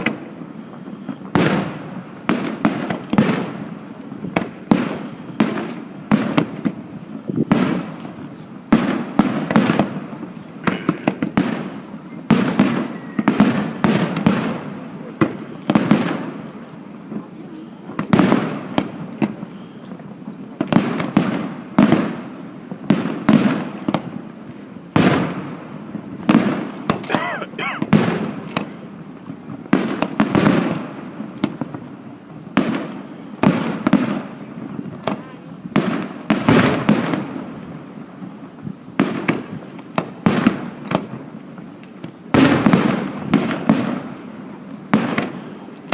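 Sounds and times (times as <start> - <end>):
firework bangs: 0.0 - 16.5, 20.6 - 24.2, 24.9 - 28.8, 35.8 - 37.4, 42.3 - 44.1
firework crackling: 0.0 - 34.4.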